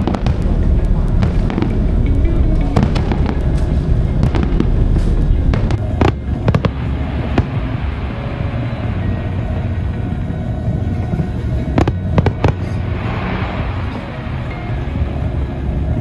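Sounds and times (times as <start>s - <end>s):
fireworks bangs and crackles: 0.0s - 8.9s
deep continuous rumble: 0.0s - 16.0s.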